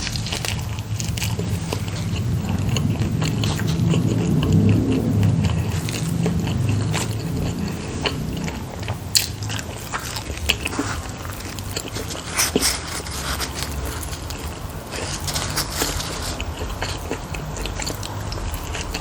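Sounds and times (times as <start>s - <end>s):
biting and chewing dumplings: 0.0s - 19.0s
crisp snaps: 8.9s - 18.2s.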